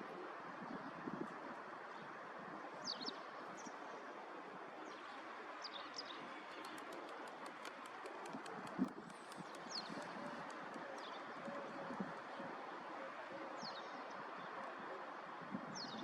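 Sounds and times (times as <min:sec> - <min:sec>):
small birds chirping: 0:08.6 - 0:12.0.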